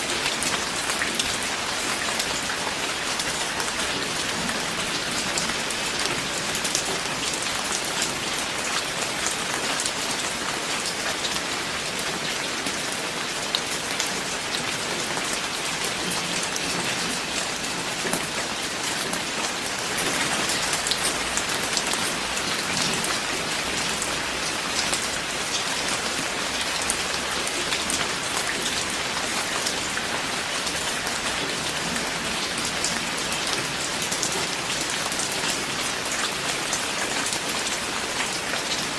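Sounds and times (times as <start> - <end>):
rain pattering on a surface: 0.0 - 38.9.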